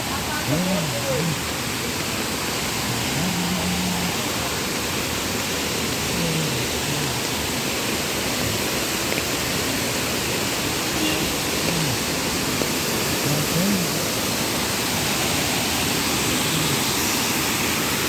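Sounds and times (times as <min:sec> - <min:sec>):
faint voices: 0:00.0 - 0:04.6, 0:05.9 - 0:07.4, 0:13.1 - 0:14.3
waterfall rushing: 0:00.0 - 0:18.0.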